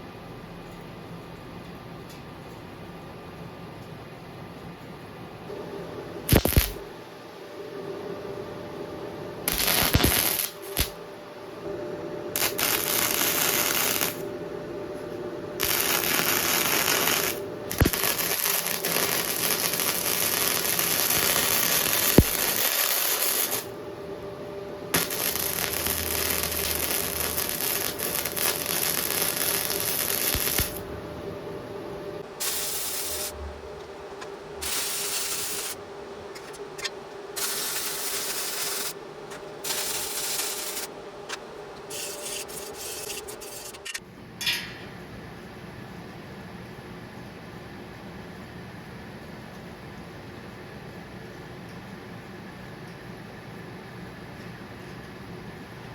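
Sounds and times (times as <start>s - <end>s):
faint steady hum: 0.0s - 55.9s
welding arc crackling: 6.3s - 6.9s, 9.5s - 11.0s, 12.3s - 14.3s, 15.6s - 23.8s, 24.9s - 31.0s, 32.2s - 33.4s, 34.6s - 35.8s, 36.4s - 39.0s, 39.6s - 40.9s, 41.9s - 44.0s.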